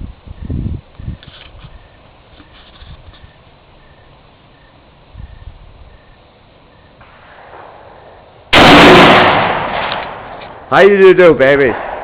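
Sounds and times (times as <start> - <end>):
rifle shot: 7.0 - 10.7, 11.5 - 12.0.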